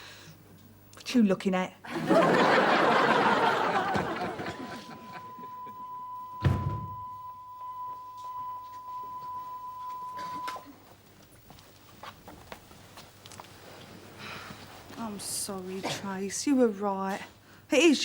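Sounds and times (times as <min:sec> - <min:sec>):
studio audience laughter: 0:01.9 - 0:05.5
steady high tone: 0:03.5 - 0:10.7
thud: 0:06.4 - 0:07.1.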